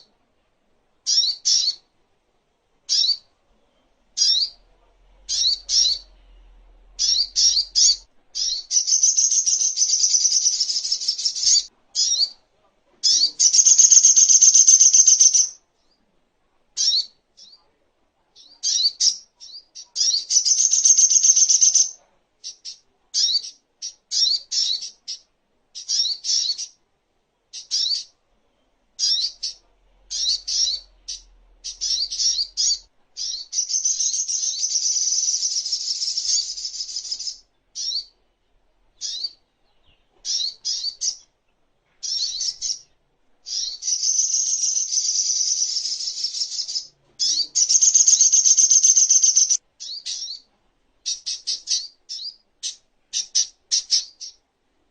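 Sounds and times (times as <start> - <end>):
bird rapid twittering trills: 13.1 - 15.6, 20.0 - 25.2, 43.5 - 50.4
bird high short chirps: 29.0 - 38.1, 43.5 - 50.5.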